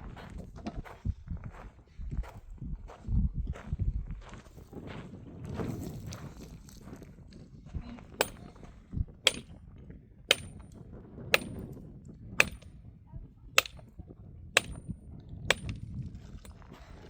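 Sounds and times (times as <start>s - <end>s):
sharp metal blows ringing: 8.2s - 8.4s, 9.3s - 9.5s, 10.3s - 10.7s, 11.4s - 11.7s, 12.4s - 12.7s, 13.6s - 13.8s, 14.6s - 14.9s, 15.5s - 15.8s.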